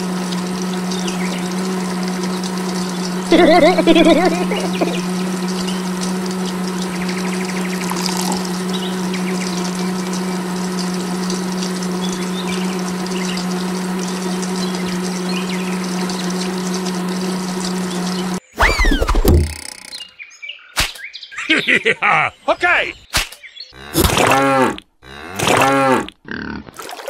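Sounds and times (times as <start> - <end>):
small electric motor humming: 0.0 - 20.0.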